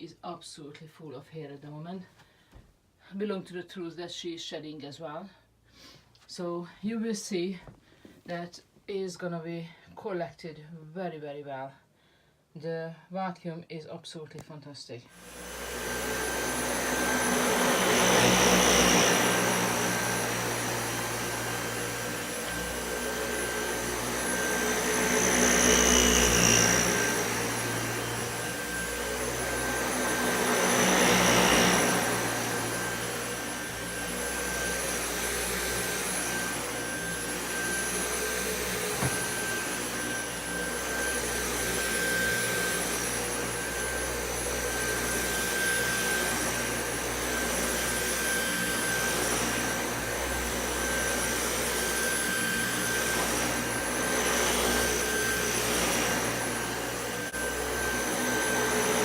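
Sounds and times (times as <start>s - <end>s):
vacuum cleaner running on carpet: 15.2s - 59.0s.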